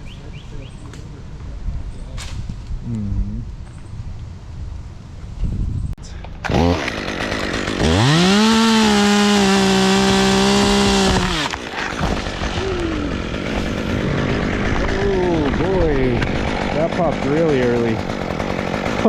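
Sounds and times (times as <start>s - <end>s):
chainsaw revving and idling: 6.4s - 19.0s.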